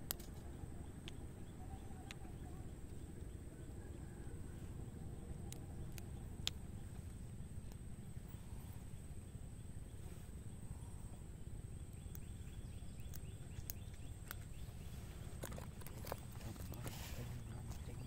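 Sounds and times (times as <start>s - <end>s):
sharp clicks: 0.0s - 1.3s, 5.4s - 7.9s, 11.8s - 14.7s
insect drone: 0.0s - 18.0s
rapid chirps: 0.0s - 18.0s.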